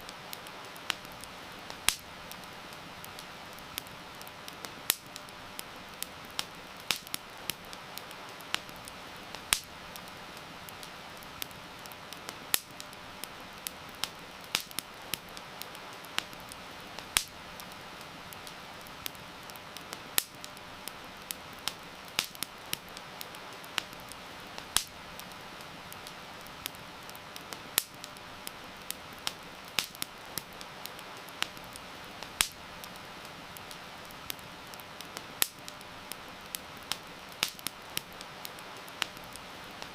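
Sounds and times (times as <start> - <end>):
heavy rain hiss: 0.0 - 39.9
wood fire crackling and popping: 0.0 - 39.9.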